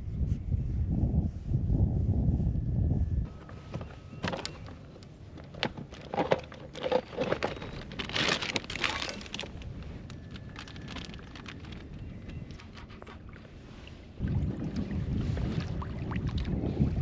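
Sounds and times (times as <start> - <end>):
rustling: 3.3 - 14.1.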